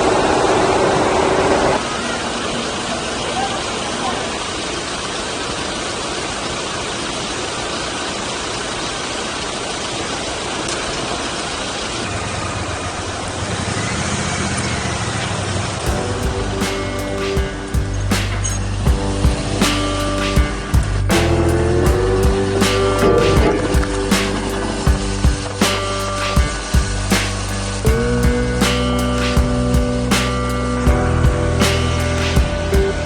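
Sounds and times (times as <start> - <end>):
engine hum: 15.8 - 33.0
deep engine hum: 15.9 - 33.0.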